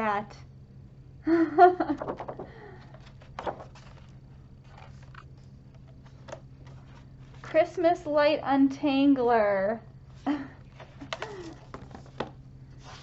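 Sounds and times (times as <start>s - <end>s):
steady low hum: 0.0s - 13.0s
books being handled: 1.9s - 7.6s, 10.6s - 13.0s.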